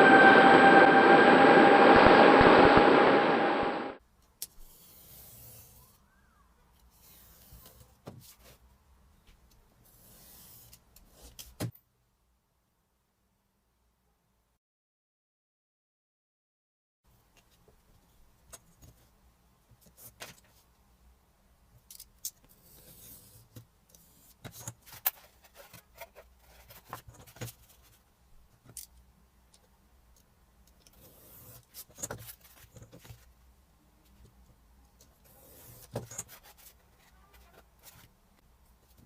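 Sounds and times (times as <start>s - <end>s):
clicks and taps of handled parts: 28.6s - 31.0s.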